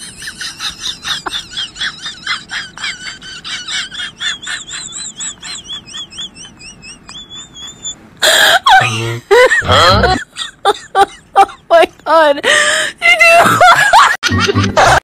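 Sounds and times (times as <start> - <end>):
warbling bird whistle: 5.8 - 8.0.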